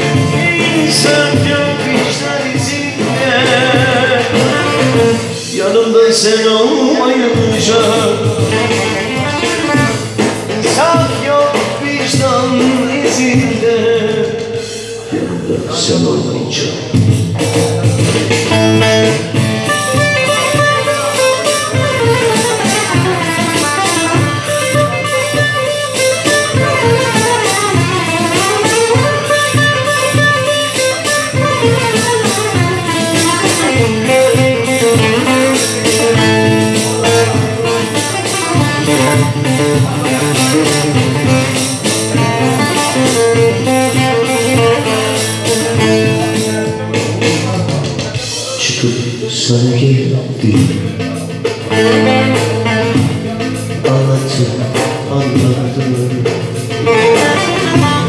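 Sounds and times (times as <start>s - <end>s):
plucked lute melody: 0.0s - 5.4s, 17.3s - 47.4s, 56.6s - 58.0s
band bass and drum beat: 0.0s - 58.0s.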